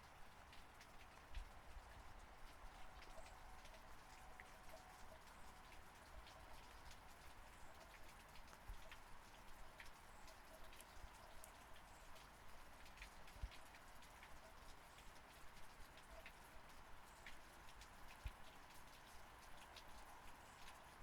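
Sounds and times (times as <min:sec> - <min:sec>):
faint steady rain: 0:00.0 - 0:21.0.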